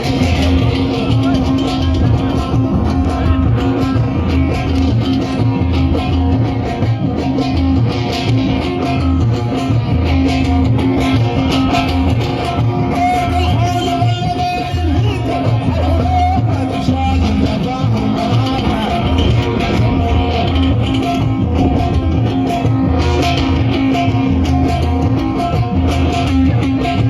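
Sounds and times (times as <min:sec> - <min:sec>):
live band music: 0:00.0 - 0:27.0
plucked string melody: 0:00.0 - 0:27.0
pulsing bass beat: 0:00.0 - 0:27.0
person singing: 0:12.8 - 0:21.2.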